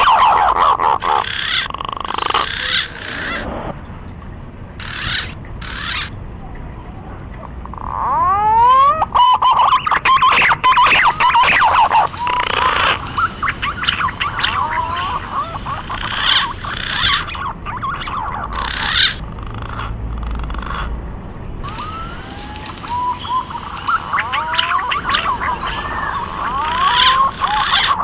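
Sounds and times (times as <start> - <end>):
whistled bird lure call: 8.1 - 19.2, 21.6 - 28.0.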